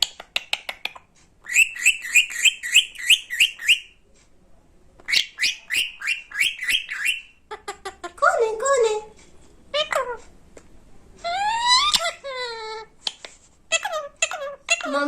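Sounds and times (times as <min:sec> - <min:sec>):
parakeet squawking: 0:01.4 - 0:04.0, 0:05.1 - 0:08.6, 0:09.7 - 0:10.2, 0:11.2 - 0:15.0.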